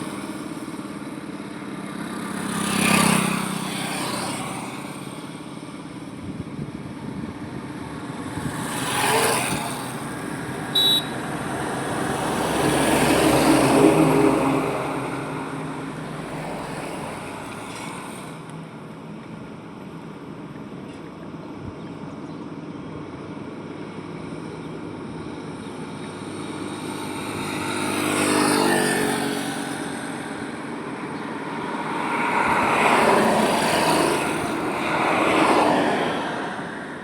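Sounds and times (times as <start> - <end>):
highway road noise hum: 0.0 - 37.0
vehicles passing close by: 0.0 - 37.0.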